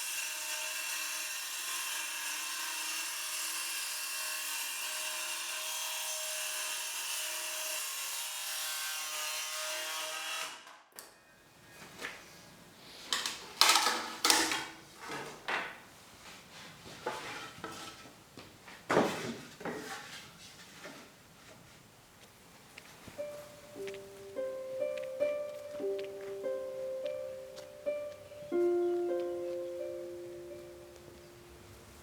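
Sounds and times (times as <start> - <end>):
scraping strokes on wood: 16.9 - 18.2.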